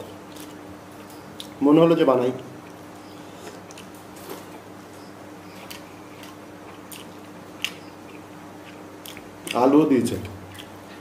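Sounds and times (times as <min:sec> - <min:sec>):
person chewing with wet smacks: 0:00.3 - 0:01.6, 0:02.6 - 0:04.0, 0:05.5 - 0:09.6, 0:10.2 - 0:11.0.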